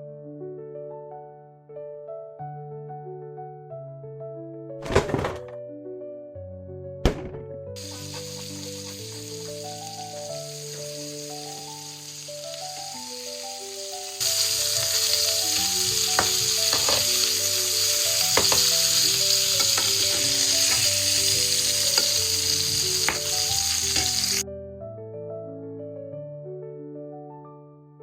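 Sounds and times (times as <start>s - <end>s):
utensil tapping a pan: 7.8s - 9.8s, 14.7s - 17.3s, 18.2s - 22.2s, 23.0s - 24.2s
food sizzling in a frying pan: 7.8s - 24.4s.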